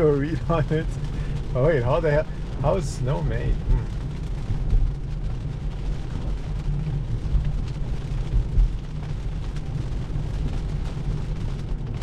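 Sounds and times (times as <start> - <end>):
tyre and road noise in car: 0.0 - 12.0.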